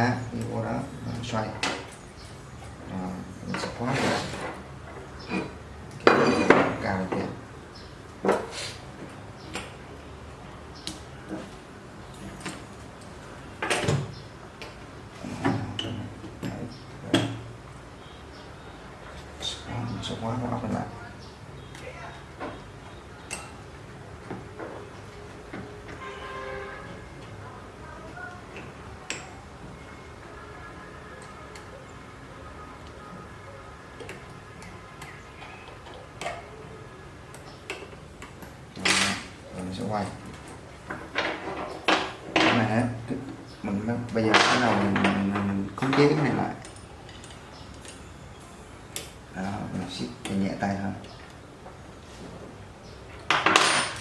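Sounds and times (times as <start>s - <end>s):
faint background hum: 0.0s - 54.0s
metal parts knocking and clinking: 44.3s - 46.0s, 53.3s - 54.0s
metal parts clicking and tapping: 44.3s - 48.1s.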